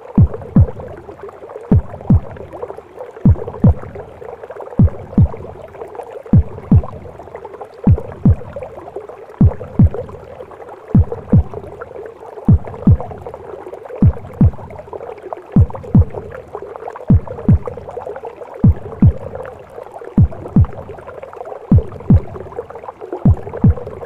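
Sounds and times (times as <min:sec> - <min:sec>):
whooshing gurgling womb noise: 0:00.0 - 0:24.0
heartbeat thumps: 0:00.1 - 0:01.0, 0:01.7 - 0:02.6, 0:03.2 - 0:04.2, 0:04.8 - 0:05.6, 0:06.3 - 0:07.2, 0:07.8 - 0:08.8, 0:09.4 - 0:10.3, 0:10.9 - 0:11.8, 0:12.5 - 0:13.4, 0:14.0 - 0:14.9, 0:15.6 - 0:16.5, 0:17.1 - 0:18.0, 0:18.6 - 0:21.0, 0:21.7 - 0:22.6, 0:23.2 - 0:24.0.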